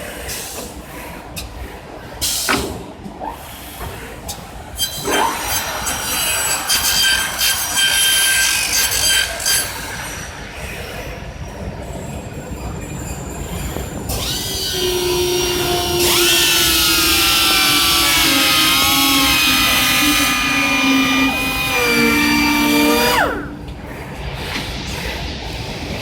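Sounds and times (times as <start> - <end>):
motor spinning up with whine: 14.2 - 23.6
cutters running with high whine: 14.2 - 23.8.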